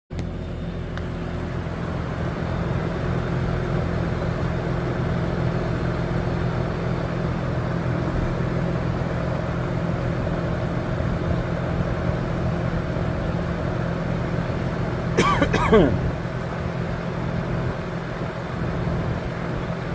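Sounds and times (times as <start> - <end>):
air conditioner humming: 11.1 - 19.9.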